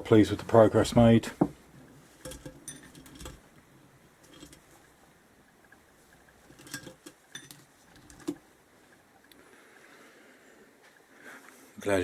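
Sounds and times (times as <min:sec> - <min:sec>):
small metal parts clinking: 0:02.2 - 0:03.4, 0:06.5 - 0:08.4.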